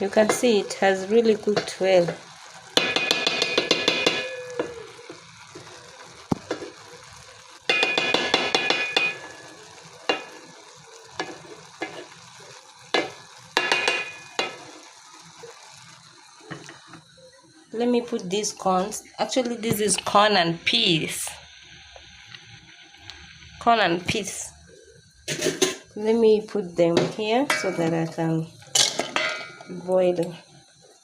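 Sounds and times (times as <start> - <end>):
spoon knocking against pot: 2.8 - 4.8, 7.7 - 9.3, 12.9 - 14.6.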